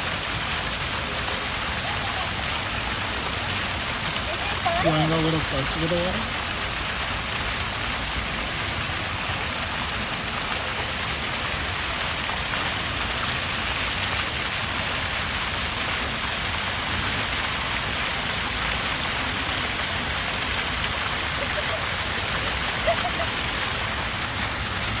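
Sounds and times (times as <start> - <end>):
rushing water: 0.0 - 25.0.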